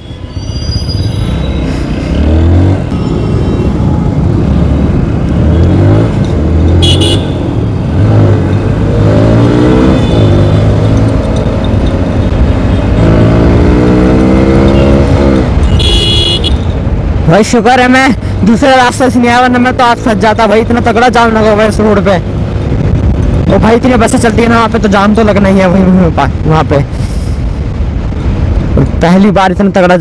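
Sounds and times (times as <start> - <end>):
motorcycle engine accelerating: 7.8 - 15.6.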